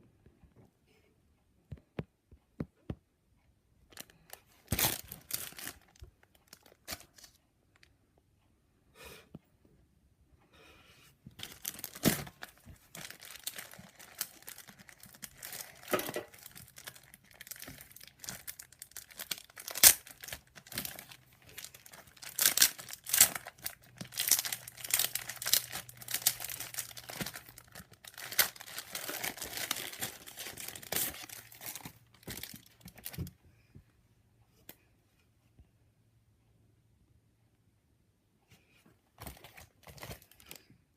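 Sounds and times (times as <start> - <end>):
plastic wrapping torn and crinkled: 3.9 - 7.9, 11.4 - 33.3.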